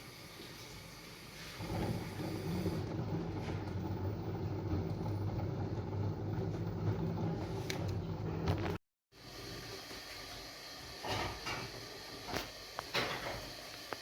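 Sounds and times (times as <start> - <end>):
washing machine drum humming: 0.0 - 8.8.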